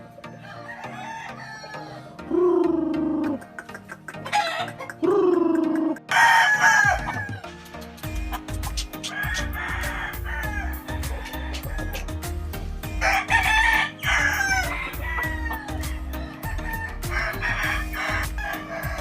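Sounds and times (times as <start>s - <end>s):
chickens clucking: 0.0s - 19.0s
roosters crowing: 0.2s - 3.4s, 4.2s - 19.0s
music with bass beat: 2.3s - 19.0s.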